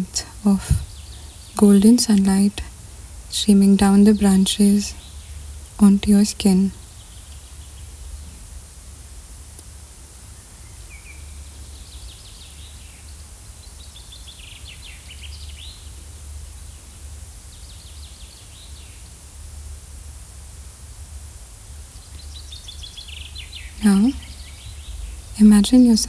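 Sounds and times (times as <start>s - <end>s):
birds chirping: 0.0s - 2.6s, 22.0s - 26.0s
faint hiss: 0.0s - 26.0s.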